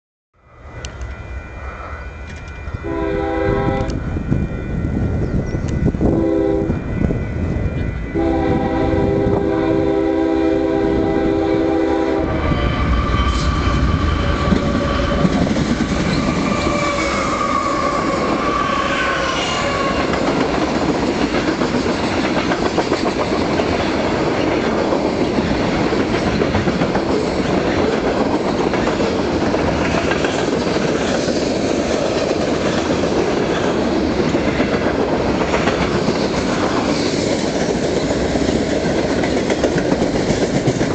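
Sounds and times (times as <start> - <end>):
train horn chord: 0.8 - 4.8, 6.0 - 15.4, 16.1 - 20.3
train wheels clattering on rails: 13.0 - 40.9.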